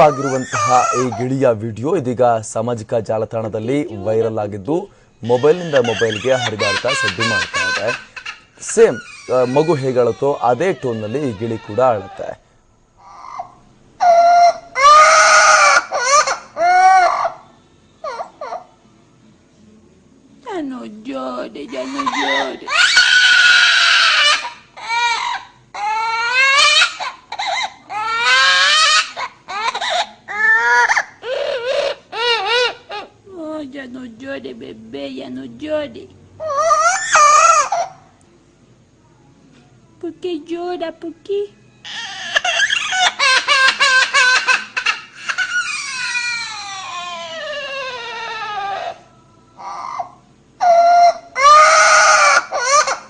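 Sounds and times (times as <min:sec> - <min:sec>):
parrot mimicking baby crying: 0:00.0 - 0:01.5, 0:05.2 - 0:12.4, 0:13.0 - 0:18.8, 0:21.4 - 0:33.2, 0:36.4 - 0:38.1, 0:41.8 - 0:53.0.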